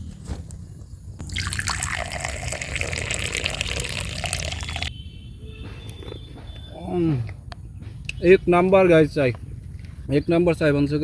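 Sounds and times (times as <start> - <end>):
tea pouring into a cup: 1.2 - 4.9.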